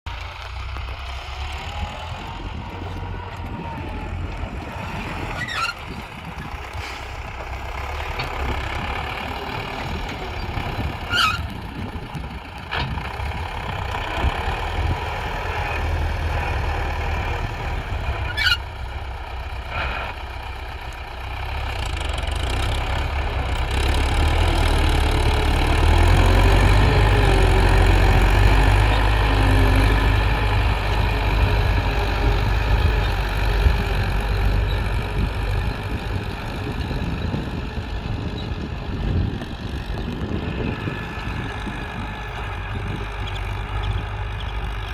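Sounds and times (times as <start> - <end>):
tractor diesel engine running: 0.1 - 44.9
high squeaks: 5.3 - 6.1, 10.3 - 11.6, 18.2 - 18.7.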